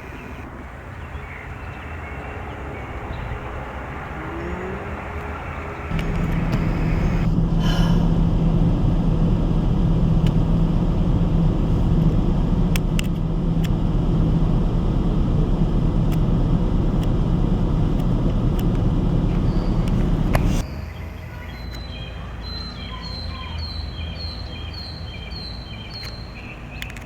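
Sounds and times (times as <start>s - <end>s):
engine rumbling: 0.0s - 27.0s.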